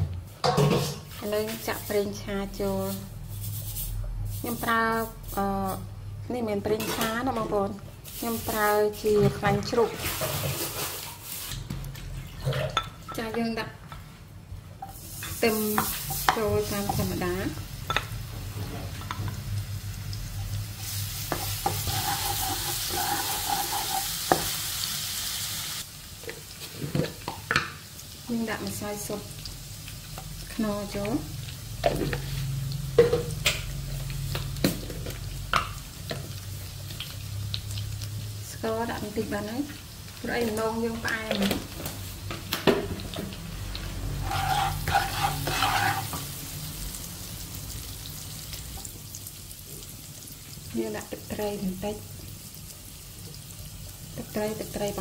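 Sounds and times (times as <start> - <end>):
garlic sizzling in hot oil: 0.6 - 12.2, 14.9 - 55.0
wooden spatula scraping wok: 8.2 - 11.6, 20.8 - 24.6, 44.1 - 46.4.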